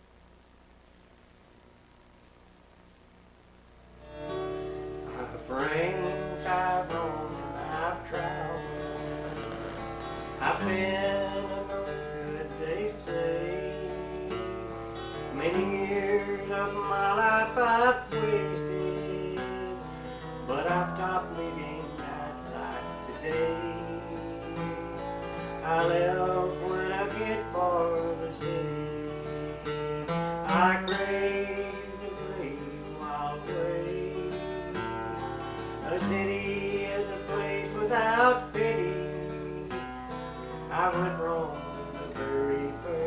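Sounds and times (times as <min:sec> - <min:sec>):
acoustic guitar: 0:03.8 - 0:43.0
sliding dobro notes: 0:04.1 - 0:43.0.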